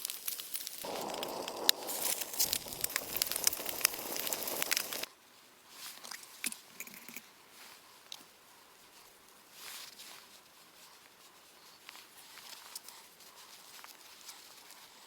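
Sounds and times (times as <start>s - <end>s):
faint scattered crunches: 0.0s - 5.1s
food frying with crackling sizzle: 0.0s - 5.1s.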